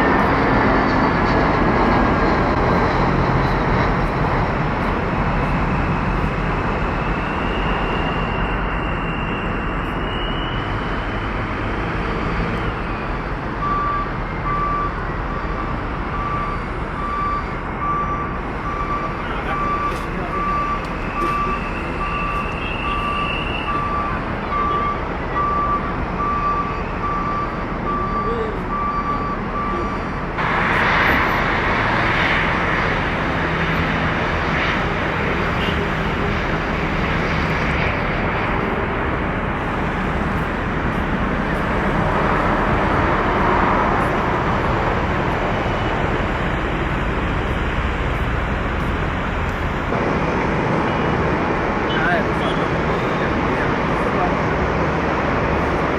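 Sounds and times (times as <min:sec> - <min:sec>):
jet engine noise: 0:00.0 - 0:55.9
vehicle reversing beeper: 0:05.3 - 0:11.4, 0:12.0 - 0:30.4.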